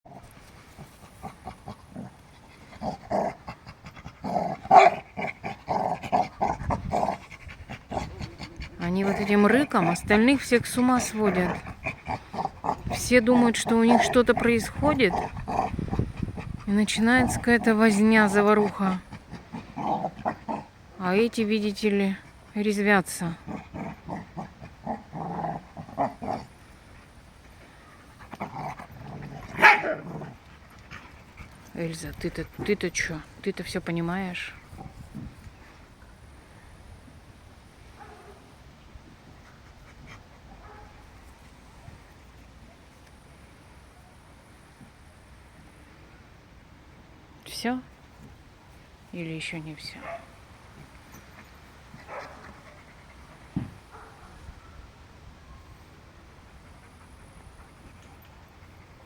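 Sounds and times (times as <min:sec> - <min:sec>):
dogs play-growling: 0:00.1 - 0:21.0, 0:23.4 - 0:33.4, 0:34.6 - 0:35.8, 0:50.0 - 0:54.0, 0:56.4 - 0:59.0
dogs panting: 0:00.4 - 0:20.4, 0:25.9 - 0:33.4, 0:49.9 - 0:54.2, 0:56.4 - 0:59.0.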